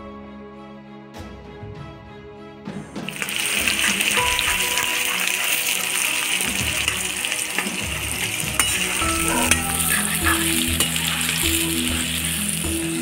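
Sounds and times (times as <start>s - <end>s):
food sizzling in hot oil: 3.1s - 13.0s
spoon stirring a pan: 3.2s - 12.9s.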